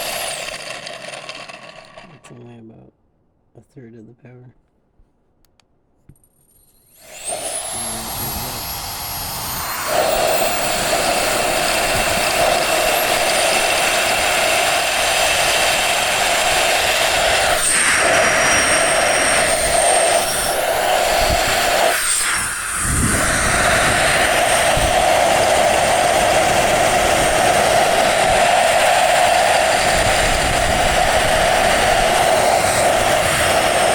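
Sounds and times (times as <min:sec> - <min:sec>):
electric jet fan whining: 0:00.0 - 0:02.6, 0:06.9 - 0:33.9.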